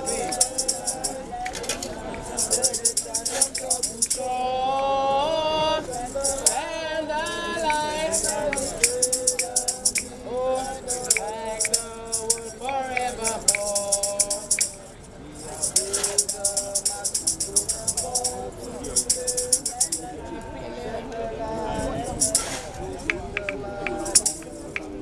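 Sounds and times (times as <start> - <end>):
jingling hand percussion: 0.0 - 20.2, 21.6 - 25.0
voices singing a hymn: 0.0 - 25.0.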